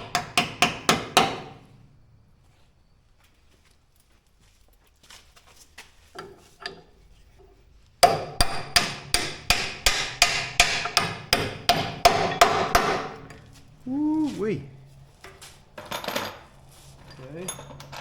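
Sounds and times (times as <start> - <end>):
hammer striking steel: 8.0 - 13.5.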